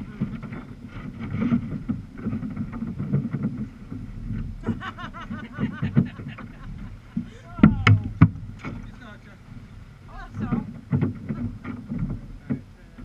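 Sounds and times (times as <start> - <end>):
water slapping against kayak hull: 0.0 - 13.0
wind buffeting microphone: 0.0 - 13.0
distant person calling out: 7.4 - 8.2.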